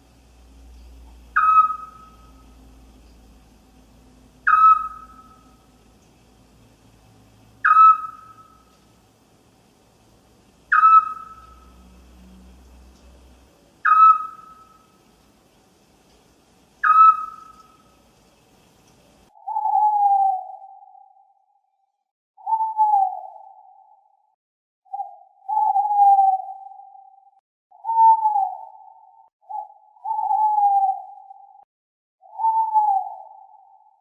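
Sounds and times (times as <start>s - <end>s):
owl calling: 1.3s - 2.6s, 4.4s - 5.7s, 7.6s - 8.8s, 10.7s - 11.9s, 13.8s - 15.0s, 16.8s - 18.0s, 19.3s - 21.3s, 22.4s - 24.1s, 24.9s - 27.2s, 27.8s - 31.6s, 32.2s - 34.0s.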